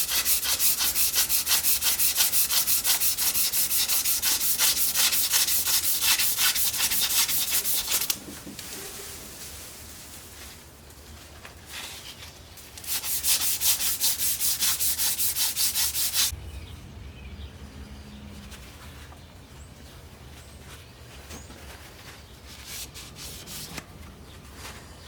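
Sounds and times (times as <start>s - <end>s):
hand sanding metal: 0.0s - 8.2s, 12.7s - 16.3s, 22.5s - 23.8s.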